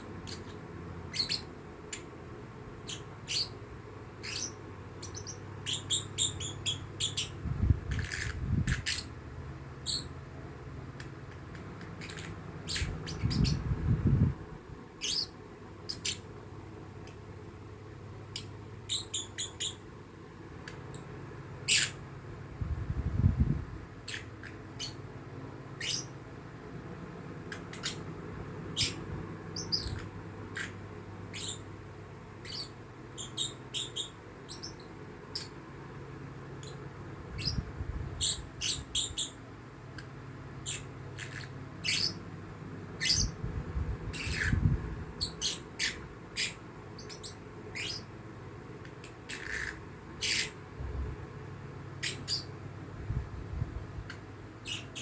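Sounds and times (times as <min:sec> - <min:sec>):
bird chick chirping: 0:04.2 - 0:09.1, 0:12.0 - 0:13.7.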